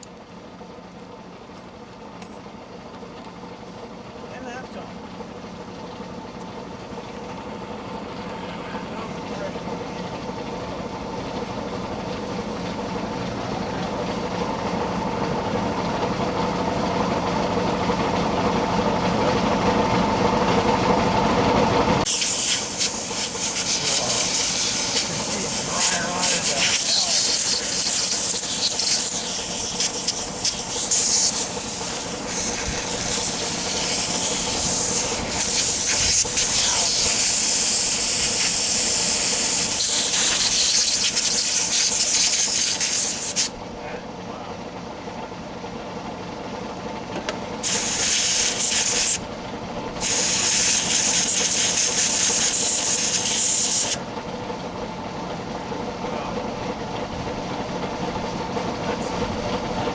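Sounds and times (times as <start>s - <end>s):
steady mechanical hum: 0.0s - 59.9s
loud steady hiss: 22.1s - 43.5s, 47.6s - 49.2s, 50.0s - 54.0s.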